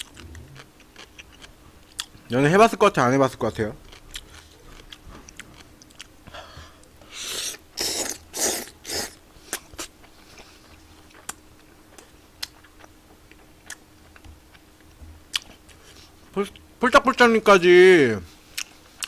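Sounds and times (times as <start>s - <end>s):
wet chewing mouth clicks: 0.0s - 2.2s.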